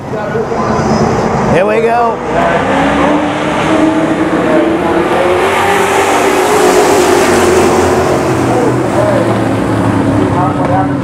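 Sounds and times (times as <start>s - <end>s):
constant rushing noise: 0.0s - 11.0s
truck engine accelerating: 0.0s - 11.0s.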